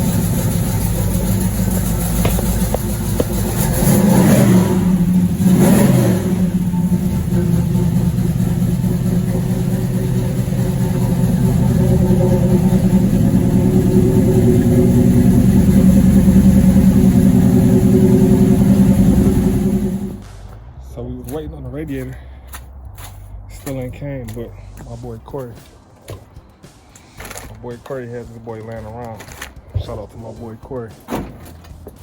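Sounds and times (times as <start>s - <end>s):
car engine revving: 0.0s - 20.6s
car engine idling: 0.0s - 21.4s.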